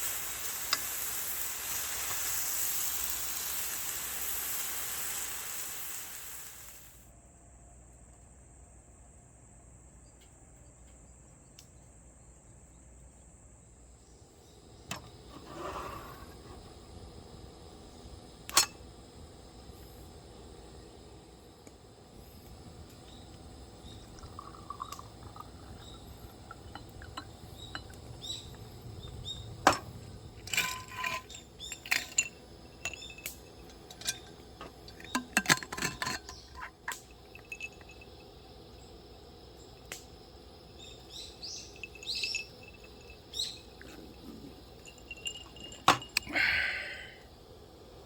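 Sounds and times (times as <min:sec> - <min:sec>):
bird chirps: 0:23.0 - 0:29.6, 0:40.7 - 0:44.0
camping gear clinking and clattering: 0:24.0 - 0:38.4, 0:41.4 - 0:46.9.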